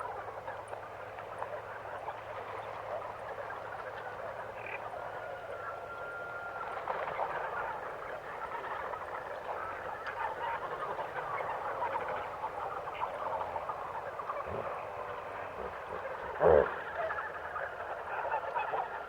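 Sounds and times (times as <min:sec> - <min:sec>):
frogs croaking in chorus: 0:01.6 - 0:05.2.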